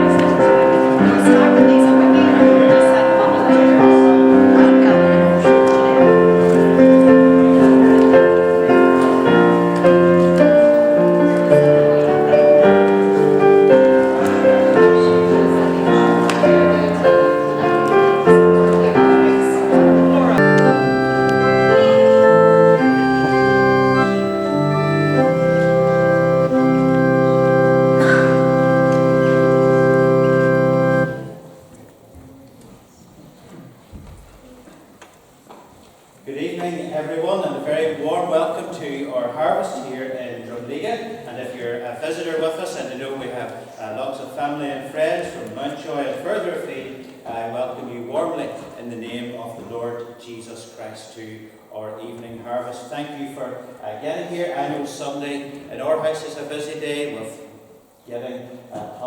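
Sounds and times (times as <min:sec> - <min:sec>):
organ music: 0:00.0 - 0:31.8.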